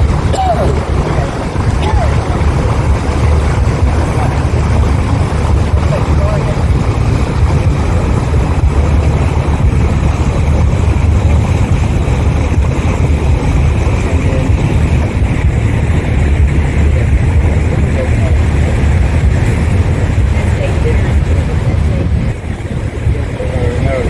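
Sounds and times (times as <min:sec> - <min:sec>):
boat engine low rumble: 0:00.0 - 0:24.0.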